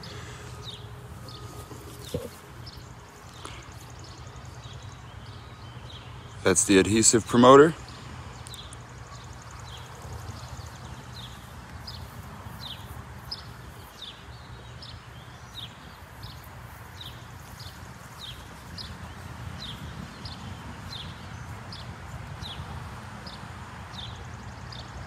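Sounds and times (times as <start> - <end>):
bird chirping: 0.0 - 25.0.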